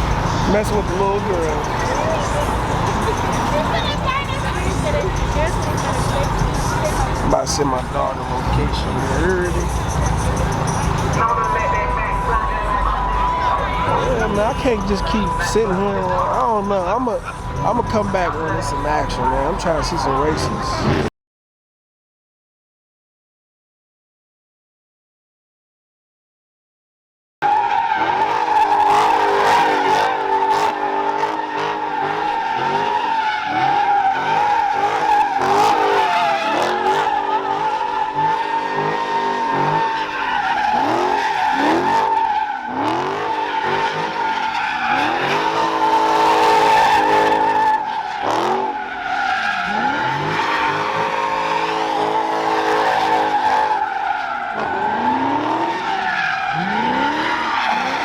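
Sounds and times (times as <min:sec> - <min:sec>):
car engines revving: 0:00.0 - 0:21.1, 0:27.4 - 0:58.0
car tires squealing: 0:00.0 - 0:21.1, 0:27.4 - 0:58.0.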